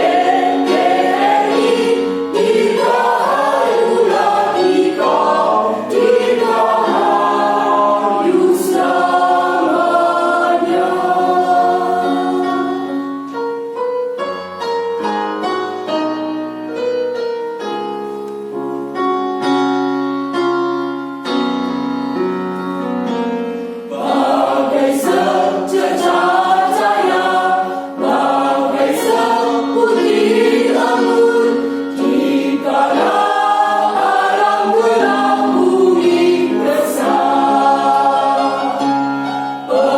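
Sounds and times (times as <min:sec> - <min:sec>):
choir singing in parts: 0:00.0 - 0:13.3, 0:23.9 - 0:39.9.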